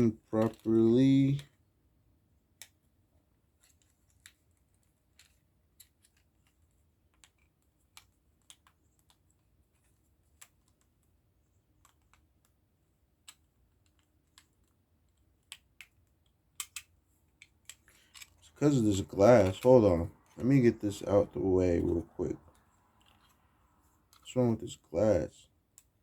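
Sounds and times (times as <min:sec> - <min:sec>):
plastic parts clicking together: 0:00.0 - 0:01.6, 0:03.6 - 0:12.6, 0:13.2 - 0:20.5.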